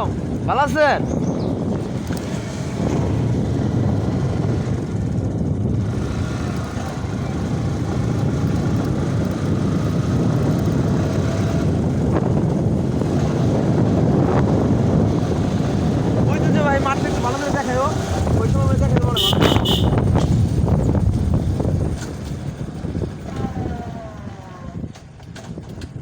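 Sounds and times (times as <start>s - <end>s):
motorcycle engine: 0.0s - 26.0s
road noise: 0.0s - 26.0s
wind rumble on microphone: 0.0s - 26.0s.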